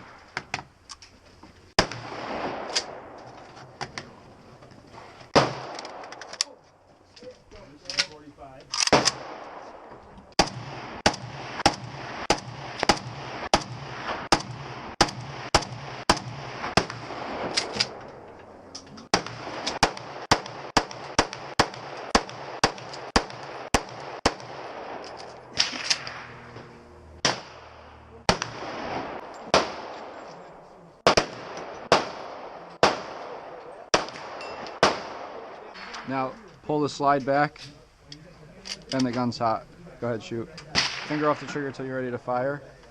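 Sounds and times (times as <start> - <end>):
gunshots with echo: 8.8 - 18.0, 19.1 - 26.5, 27.2 - 30.3, 31.0 - 36.2, 40.8 - 41.6.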